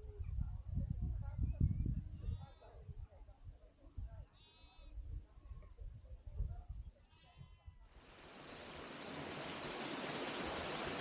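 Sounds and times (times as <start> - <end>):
waterfall rushing: 8.1 - 11.0.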